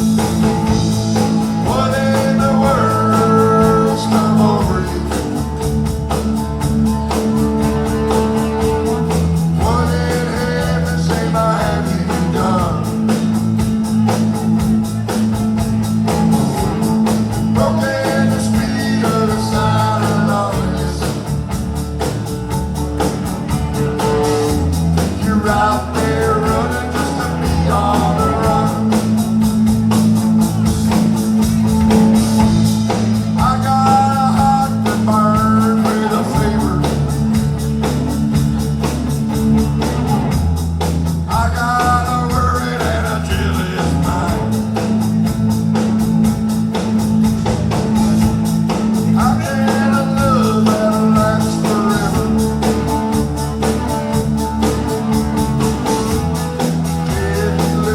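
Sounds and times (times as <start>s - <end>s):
person singing: 0.0s - 14.2s, 16.7s - 21.6s, 25.0s - 29.8s, 31.9s - 37.6s, 41.2s - 45.0s, 47.8s - 57.9s
guitar: 0.0s - 57.9s
steady bass line: 0.0s - 57.9s.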